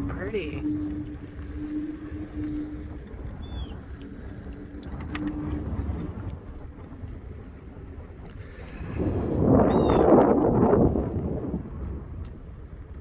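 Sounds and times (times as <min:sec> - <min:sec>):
electric motor hum: 0:00.0 - 0:07.7
low wind rumble: 0:00.0 - 0:13.0.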